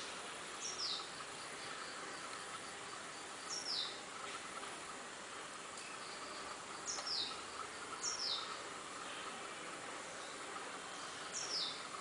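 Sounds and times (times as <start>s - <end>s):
insects: 0.0s - 12.0s
high bird calls: 5.9s - 9.3s.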